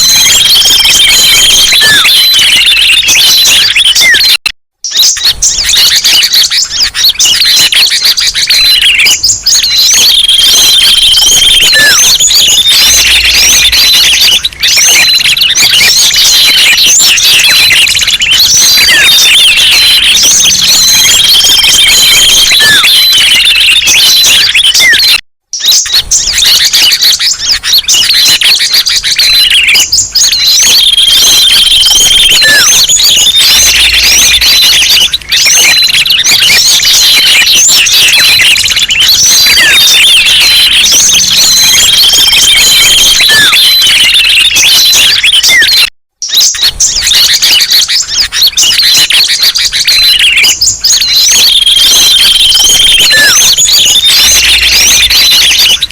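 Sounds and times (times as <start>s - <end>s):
chorus of songbirds: 0.0s - 55.9s.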